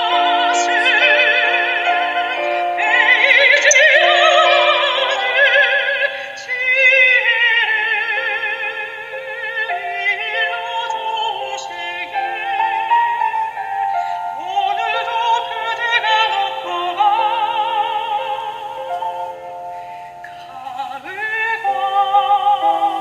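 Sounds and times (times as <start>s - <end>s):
soprano singing with vibrato: 0.0s - 23.0s.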